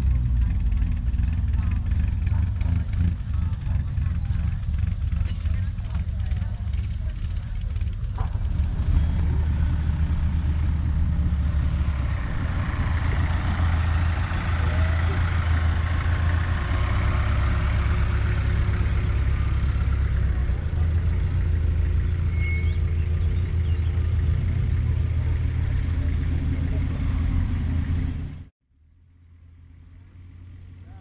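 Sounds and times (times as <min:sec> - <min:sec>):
vehicle engine idling: 0:00.0 - 0:31.0.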